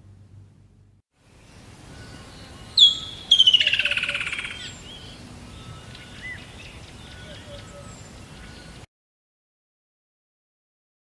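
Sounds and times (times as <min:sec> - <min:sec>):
faint bird chirps: 0:01.3 - 0:08.9
bird whistling and trilling: 0:02.0 - 0:08.7.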